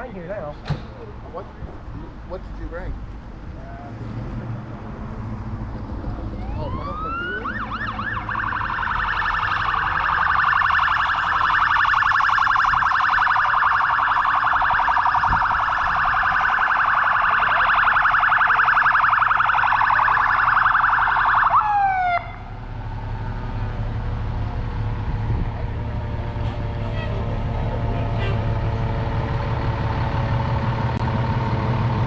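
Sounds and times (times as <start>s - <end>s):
emergency siren yelping: 6.2s - 22.6s.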